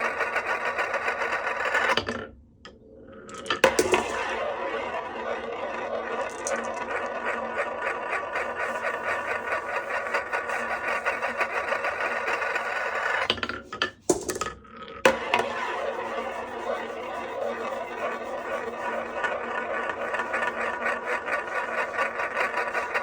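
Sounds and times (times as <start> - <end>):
marbles rattling on wooden track: 3.3 - 13.3, 15.1 - 23.0.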